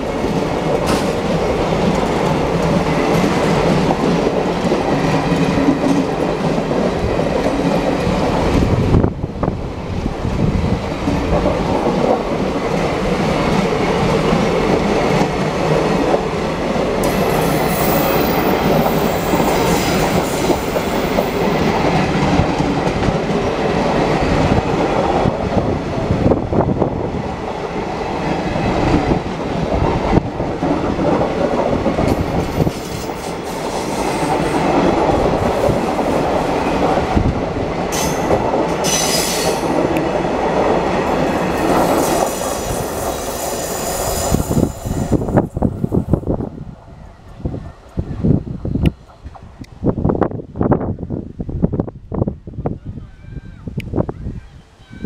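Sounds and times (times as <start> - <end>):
clickety-clack over rail joints: 0.0 - 8.8, 10.2 - 26.3, 28.3 - 43.4, 48.8 - 49.8
train wheels rumbling on rails: 0.0 - 52.4.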